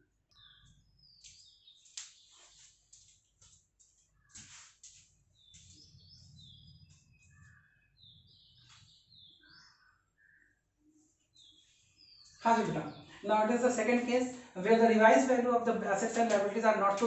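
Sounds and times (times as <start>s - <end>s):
faint bird chirps: 0.0s - 3.2s, 4.2s - 13.3s.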